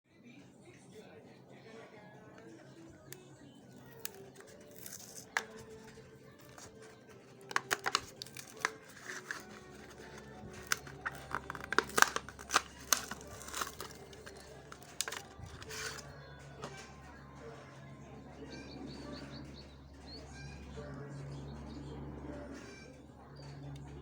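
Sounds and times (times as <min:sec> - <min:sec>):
blister packaging being torn open: 0:03.8 - 0:16.1.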